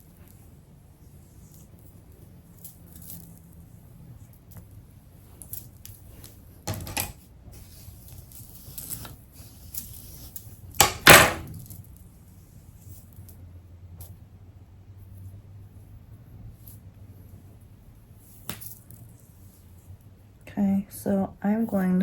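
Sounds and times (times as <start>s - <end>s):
rustling: 0.0s - 10.8s
small objects knocking: 6.7s - 7.2s.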